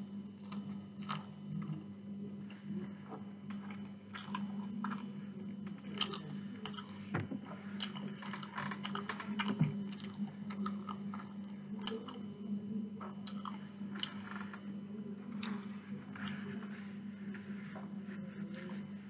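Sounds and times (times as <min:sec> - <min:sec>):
steady low hum: 0:00.0 - 0:19.0
chewing food: 0:00.4 - 0:01.8, 0:03.1 - 0:12.3, 0:13.0 - 0:14.6, 0:15.3 - 0:16.7, 0:17.4 - 0:19.0.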